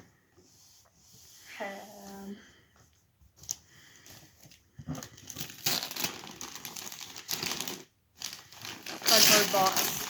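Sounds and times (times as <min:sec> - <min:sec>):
packaging crinkled and torn: 0:05.0 - 0:10.0.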